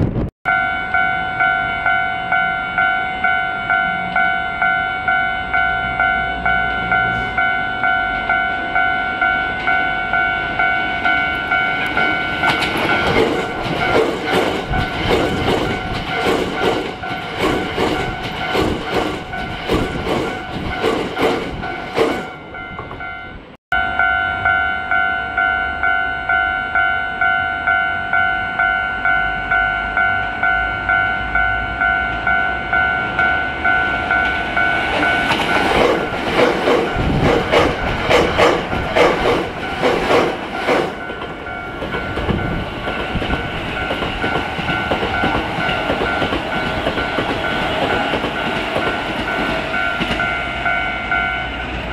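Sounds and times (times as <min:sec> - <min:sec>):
level crossing bell ringing: 0:00.5 - 0:15.1, 0:21.6 - 0:36.3, 0:40.9 - 0:51.6
train wheels clacking on rails: 0:11.1 - 0:23.1, 0:32.3 - 0:51.9.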